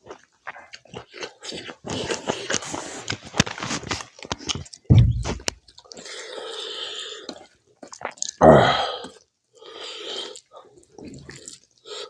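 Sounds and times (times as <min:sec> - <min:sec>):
wet chewing and lip smacking: 0:00.0 - 0:03.2, 0:04.2 - 0:08.4, 0:09.0 - 0:12.0
low thump: 0:04.9 - 0:05.6.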